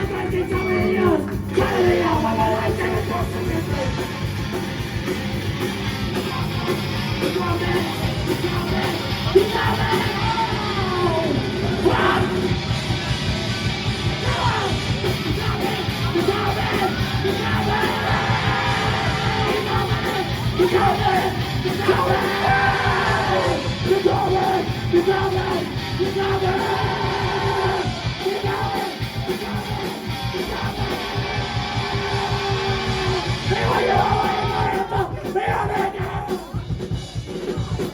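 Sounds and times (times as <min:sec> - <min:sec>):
distorted guitars: 0:00.0 - 0:37.9
drums: 0:00.0 - 0:37.9
person yelling vocals: 0:09.3 - 0:12.4, 0:14.2 - 0:28.9.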